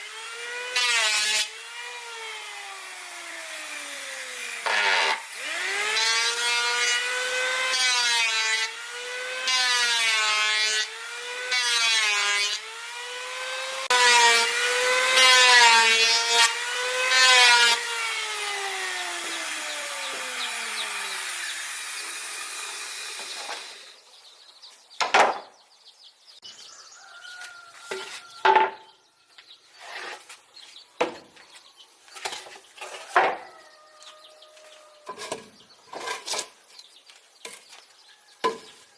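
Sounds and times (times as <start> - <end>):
electric saw cutting wood: 0.0 - 24.2.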